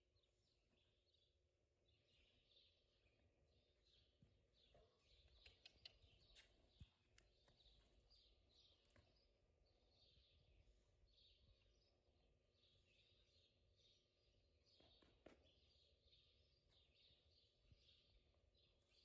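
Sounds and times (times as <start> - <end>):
bird chirping faintly: 2.1 - 12.0.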